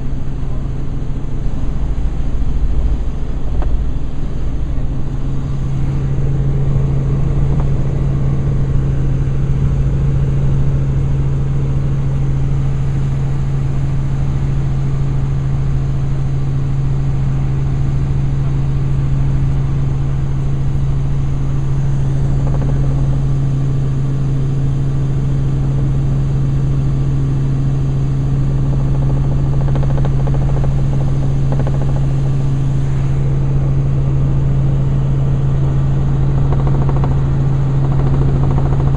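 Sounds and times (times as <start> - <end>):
helicopter engine and rotors droning: 0.0 - 38.9.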